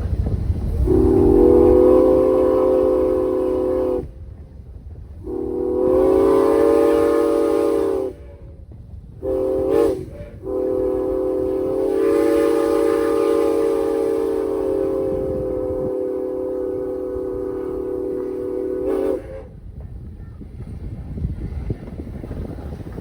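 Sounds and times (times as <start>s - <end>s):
steam whistle blasts: 0.8s - 4.2s, 5.2s - 8.6s, 9.2s - 19.6s.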